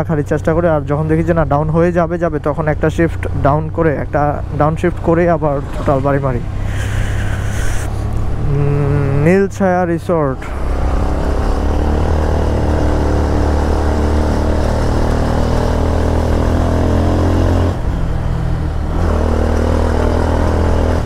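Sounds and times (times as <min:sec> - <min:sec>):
motorcycle engine running: 0:10.5 - 0:19.6.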